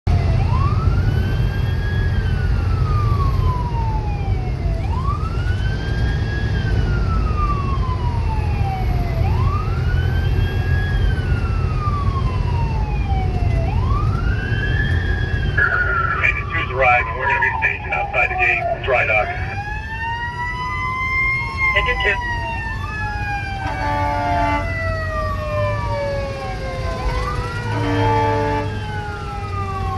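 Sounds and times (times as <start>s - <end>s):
fire engine siren wailing: 0.1s - 29.9s.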